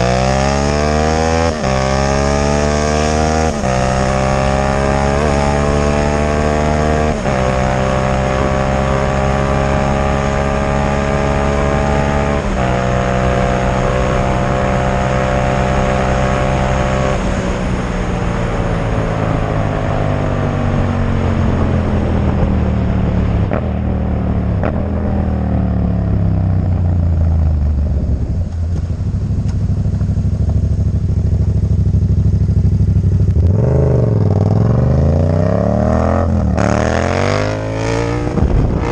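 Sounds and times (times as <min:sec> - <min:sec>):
motorcycle engine revving loudly: 0:00.0 - 0:17.6, 0:31.6 - 0:38.9.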